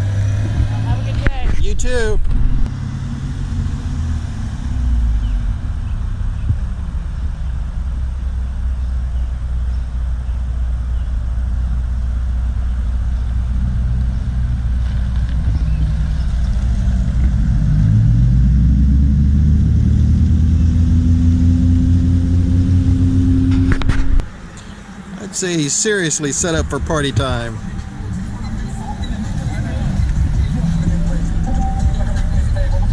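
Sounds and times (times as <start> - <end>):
car engine rumbling: 0.0 - 32.9.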